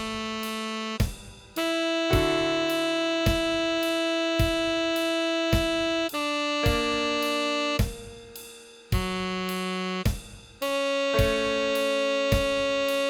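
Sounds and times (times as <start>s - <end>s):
saxophone melody: 0.0s - 13.0s
steady beat: 0.0s - 13.0s.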